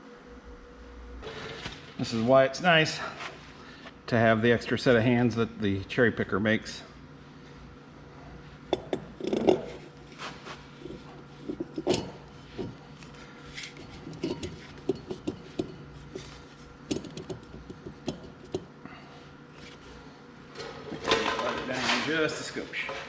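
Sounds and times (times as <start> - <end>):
heavy steel parts clinking and knocking: 20.5 - 23.0.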